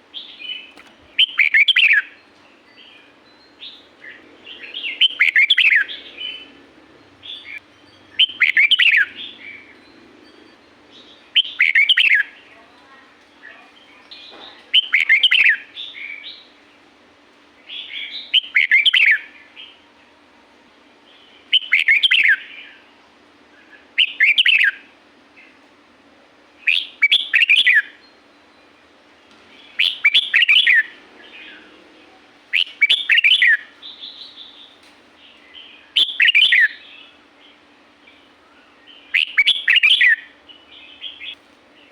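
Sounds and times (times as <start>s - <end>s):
faint steady hum: 0.0s - 41.9s
bird singing whistled notes: 0.1s - 6.6s, 7.2s - 9.9s, 10.9s - 12.5s, 13.5s - 16.6s, 17.6s - 19.8s, 21.2s - 22.9s, 23.6s - 24.9s, 26.6s - 28.7s, 29.6s - 31.7s, 32.5s - 41.9s.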